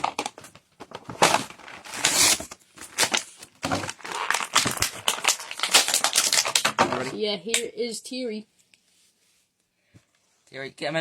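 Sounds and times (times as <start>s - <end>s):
packaging crinkling and scraping: 0.0s - 6.8s.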